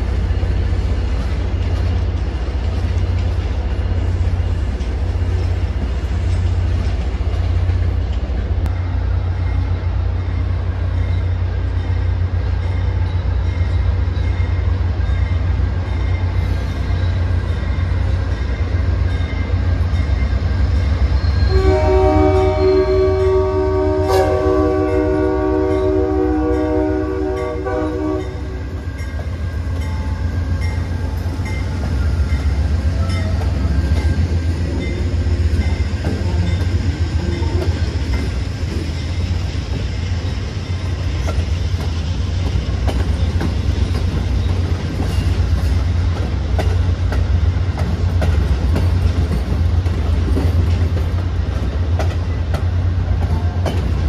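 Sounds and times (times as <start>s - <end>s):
train passing rumble: 0.0s - 54.0s
train horn chord: 21.5s - 28.6s
wheels clicking over rail joints: 41.2s - 54.0s.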